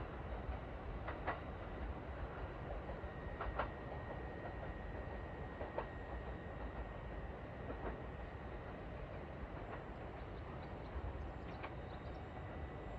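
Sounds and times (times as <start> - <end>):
train rumbling on rails: 0.0 - 12.9.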